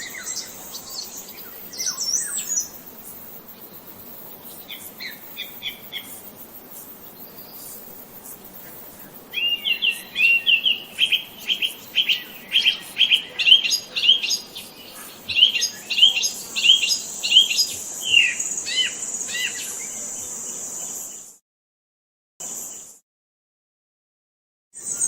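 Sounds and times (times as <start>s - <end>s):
songbird chirping: 0.0s - 6.3s, 8.6s - 21.3s.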